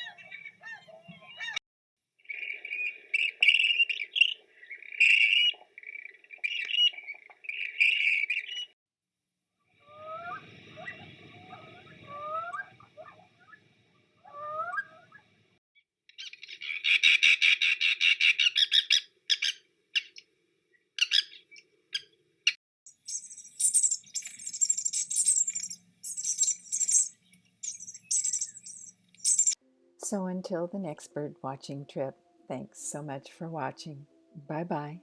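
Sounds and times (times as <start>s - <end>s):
high-pitched bird chirping: 0.0s - 1.6s, 2.3s - 8.8s, 14.3s - 15.2s, 21.0s - 22.1s, 22.9s - 29.6s
loud rapid bird trill: 22.9s - 29.6s
rising whistled bird notes: 22.9s - 29.6s.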